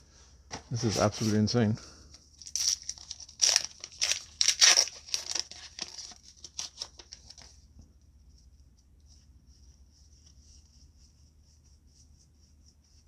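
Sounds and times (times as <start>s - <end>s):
foil wrapper crinkling and tearing: 2.4s - 7.6s.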